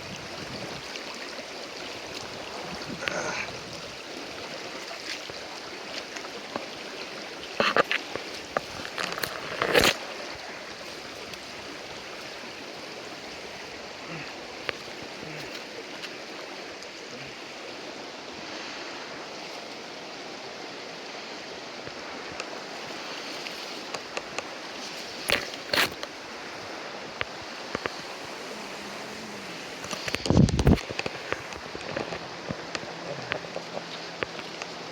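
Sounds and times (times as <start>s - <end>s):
creek water over rocks: 0.0s - 34.9s.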